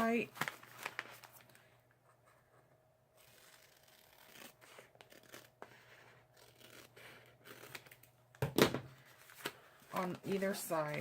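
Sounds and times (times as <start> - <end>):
scissors cutting paper: 3.2 - 8.0.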